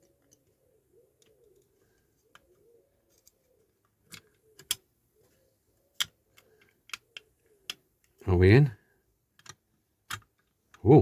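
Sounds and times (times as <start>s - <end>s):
pigeon cooing: 0.0s - 7.8s
clicks of small parts being fitted: 3.1s - 4.9s, 6.0s - 8.2s, 9.3s - 10.9s.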